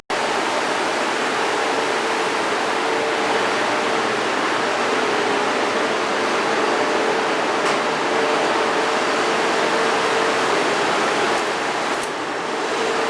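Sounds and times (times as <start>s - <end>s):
engine room machinery and ventilation: 0.1s - 13.0s.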